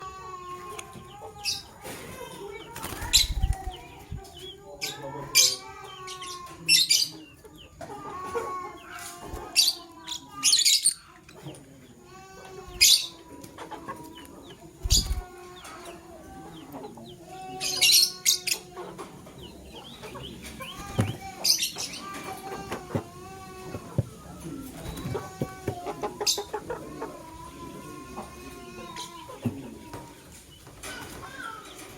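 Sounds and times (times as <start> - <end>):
lovebirds shrieking calls: 0.0 - 31.9
warbling bird chatter: 0.9 - 11.5, 12.6 - 27.8.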